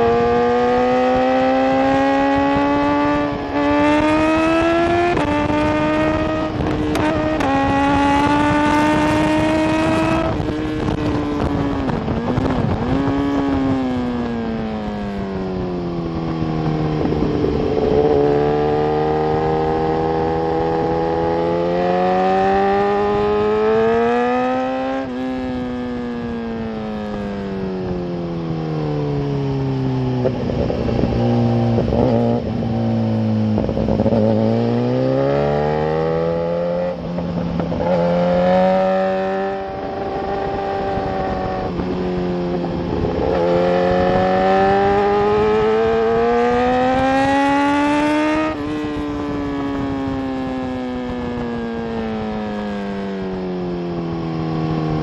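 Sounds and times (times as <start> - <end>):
motorcycle engine at speed: 0.0 - 55.0
wind rush on microphone: 0.0 - 55.0.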